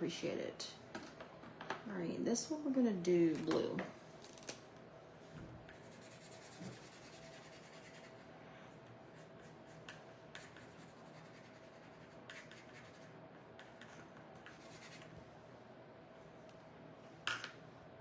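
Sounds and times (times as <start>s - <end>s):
faint steady hum: 0.0s - 18.0s
marker scratching on wood: 5.7s - 8.2s, 9.2s - 15.1s.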